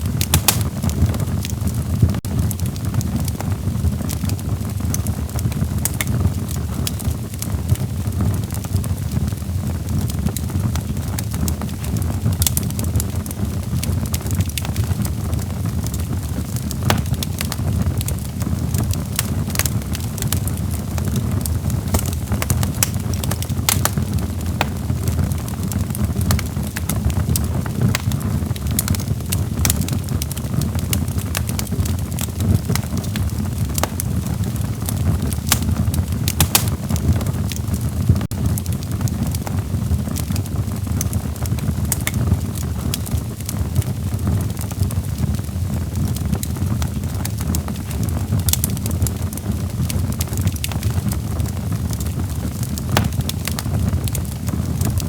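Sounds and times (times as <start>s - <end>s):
sharp pops of fire: 0.0s - 1.7s, 5.8s - 6.5s, 16.6s - 30.3s, 30.9s - 37.3s, 52.7s - 54.2s
log fire crackling: 0.0s - 55.0s.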